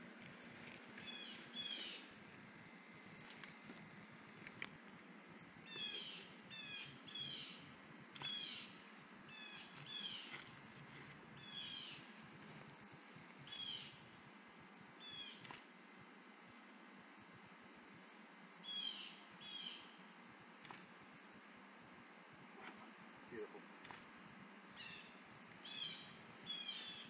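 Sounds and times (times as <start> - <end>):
sharp clicks: 15.4 - 15.7, 23.8 - 24.1.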